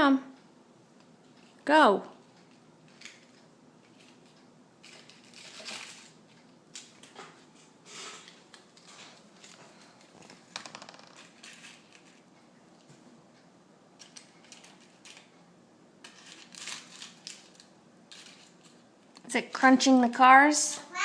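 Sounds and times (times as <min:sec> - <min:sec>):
tin foil crinkling: 0:02.9 - 0:07.3, 0:07.9 - 0:12.3, 0:14.0 - 0:15.3, 0:16.0 - 0:19.2.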